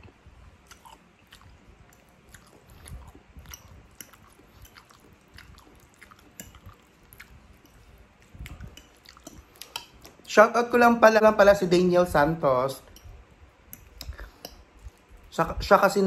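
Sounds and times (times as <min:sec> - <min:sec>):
person chewing spaghetti: 0:00.0 - 0:10.3, 0:12.8 - 0:15.3.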